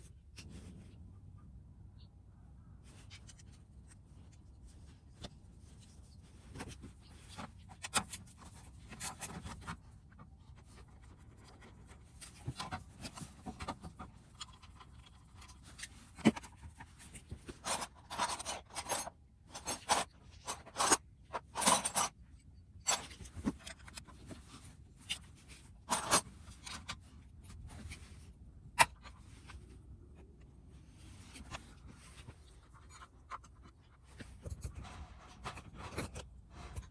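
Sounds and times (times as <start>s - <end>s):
hand tools clicking and scraping: 11.6s - 22.2s, 22.9s - 27.0s.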